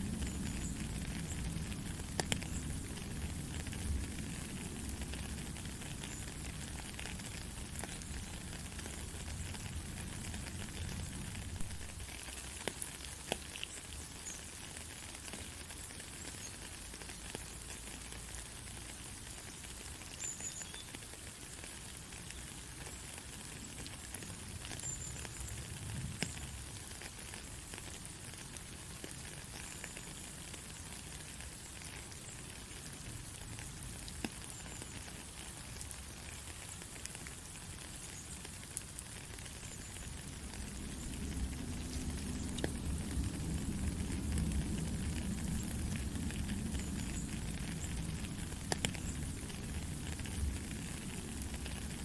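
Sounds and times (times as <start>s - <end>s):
raindrop ticks: 0.0s - 52.0s
heavy rain hissing: 21.2s - 52.0s.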